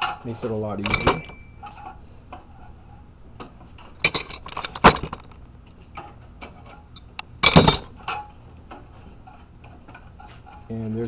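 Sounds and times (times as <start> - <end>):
metal wrenches clinking and knocking: 0.8 - 2.0, 3.9 - 5.4, 6.0 - 8.3.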